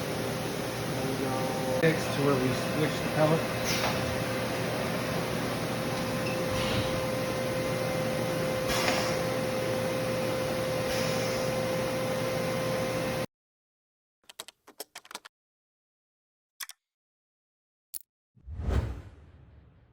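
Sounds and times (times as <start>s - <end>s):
machining center humming: 0.0s - 13.3s.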